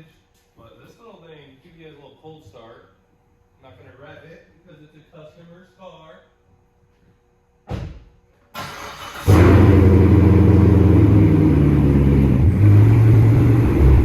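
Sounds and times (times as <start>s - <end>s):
thump: 7.7s - 8.2s
car engine cranking and idling: 8.6s - 14.0s.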